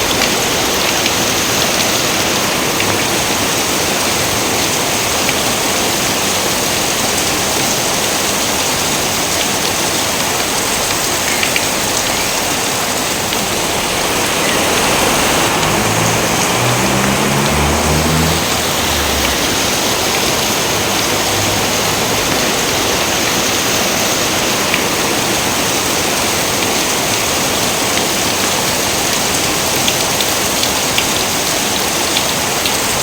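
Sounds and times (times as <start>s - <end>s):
rain pouring: 0.0s - 33.0s
low rumble: 12.3s - 21.9s.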